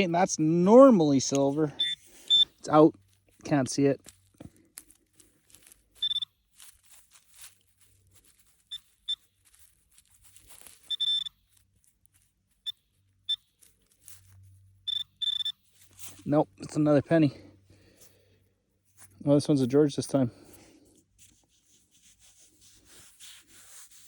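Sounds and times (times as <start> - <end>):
dirt scraping and rustling: 0.0 - 24.0
metal detector high beeps: 1.3 - 2.6, 6.0 - 6.4, 8.7 - 9.3, 10.8 - 11.4, 14.8 - 15.7.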